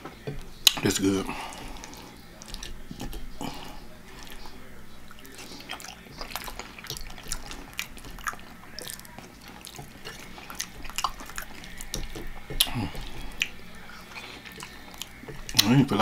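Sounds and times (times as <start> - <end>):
wet chewing and lip-smacking: 0.0 - 16.0
small sticky clicks and pops: 5.1 - 16.0.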